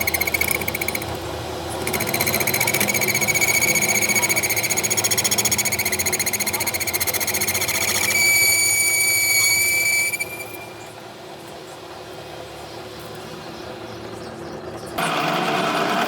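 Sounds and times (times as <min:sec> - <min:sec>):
motor tool high-pitched whine: 0:00.0 - 0:11.0, 0:15.0 - 0:16.0.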